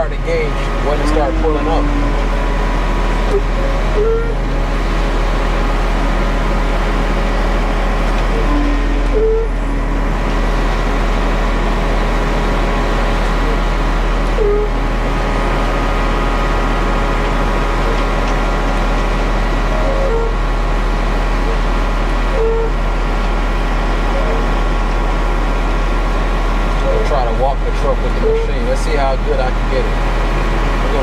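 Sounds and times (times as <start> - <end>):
truck diesel engine running: 0.0 - 31.0
short tones: 3.2 - 4.4, 8.3 - 9.8, 22.3 - 22.8.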